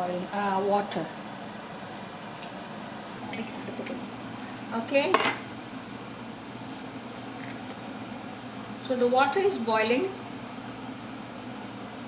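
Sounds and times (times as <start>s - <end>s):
pot and utensils clinking: 5.0s - 5.5s.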